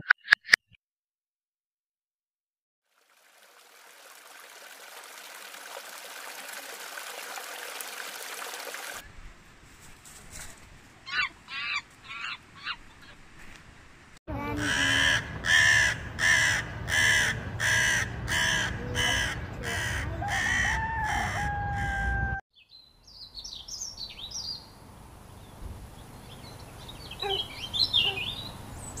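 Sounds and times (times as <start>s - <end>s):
crow cawing: 14.6s - 22.2s
small birds chirping: 22.5s - 29.0s.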